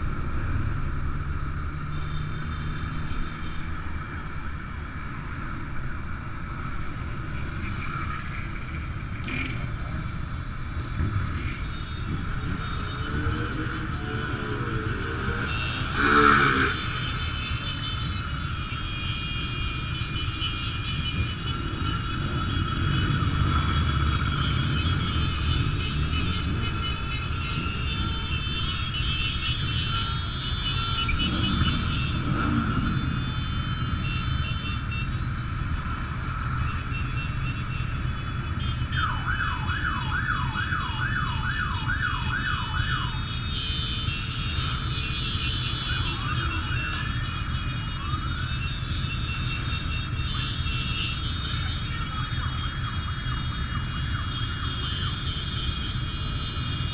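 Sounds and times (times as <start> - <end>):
siren yelping: 38.9 - 43.2.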